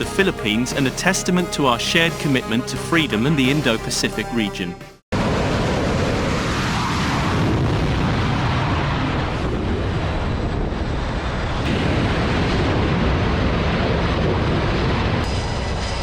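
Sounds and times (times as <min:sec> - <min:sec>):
jet aircraft engines: 0:05.2 - 0:16.0.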